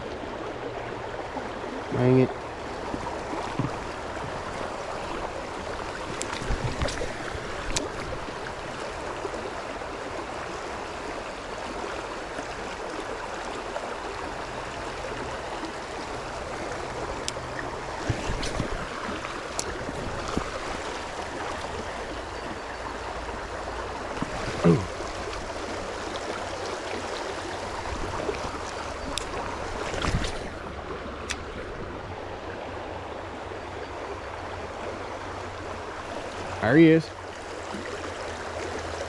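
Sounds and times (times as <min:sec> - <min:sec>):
river rushing: 0:00.0 - 0:39.0.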